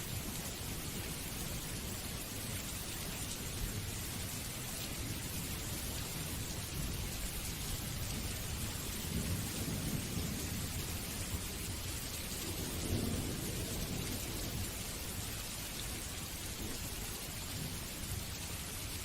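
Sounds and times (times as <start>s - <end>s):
steady rain falling: 0.0s - 19.0s
thunder rumbling: 12.3s - 14.8s.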